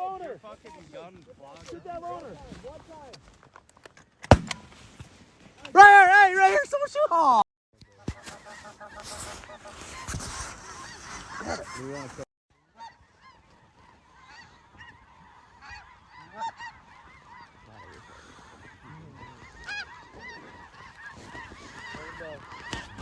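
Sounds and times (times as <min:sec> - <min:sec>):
geese honking: 0:08.0 - 0:23.0.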